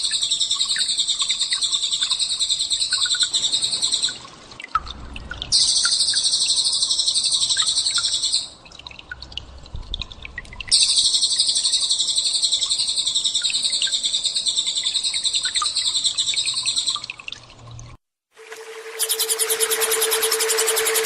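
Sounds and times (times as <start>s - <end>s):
steady low tone: 18.4s - 21.0s
bird chirps: 18.5s - 21.0s
songbird high-pitched trill: 18.5s - 21.0s.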